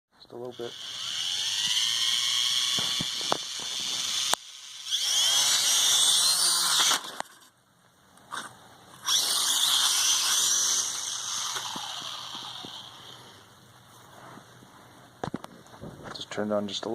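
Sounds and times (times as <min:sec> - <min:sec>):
drone motors whining: 0:00.4 - 0:07.5, 0:08.3 - 0:13.5
sharp clicks: 0:02.6 - 0:04.5.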